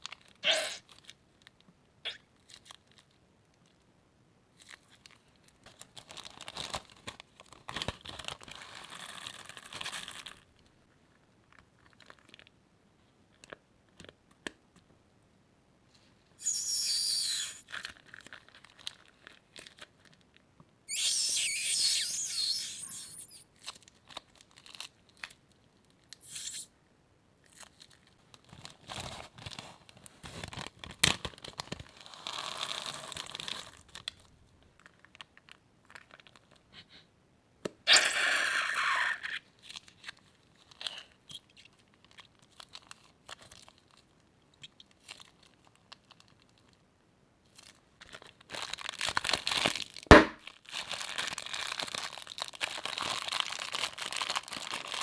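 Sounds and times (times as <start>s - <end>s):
plastic bags crinkling: 5.7s - 10.4s, 17.0s - 20.2s, 47.6s - 55.0s
slime crackles and pops: 20.9s - 23.4s.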